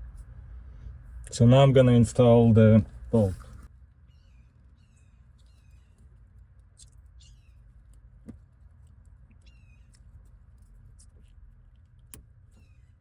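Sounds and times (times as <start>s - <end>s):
high-pitched bird chirps: 4.1s - 6.0s, 6.8s - 7.6s, 9.4s - 10.0s.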